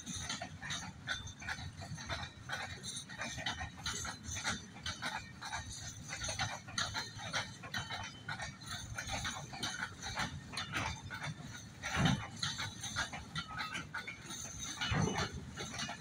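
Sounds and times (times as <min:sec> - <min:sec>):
wagons clanking and clicking: 0:00.0 - 0:16.0
wheels squeaking: 0:00.0 - 0:16.0.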